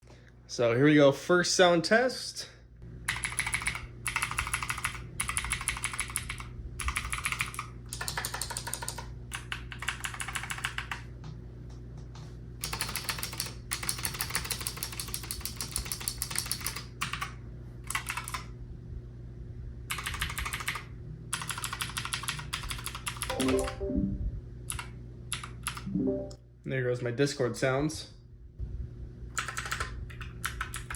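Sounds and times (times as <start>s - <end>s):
clicky mechanical keyboard typing: 3.1s - 11.1s, 12.6s - 18.5s, 19.9s - 23.8s, 24.7s - 25.9s, 29.4s - 30.9s
electronic notification tones: 23.3s - 24.3s, 25.9s - 26.4s.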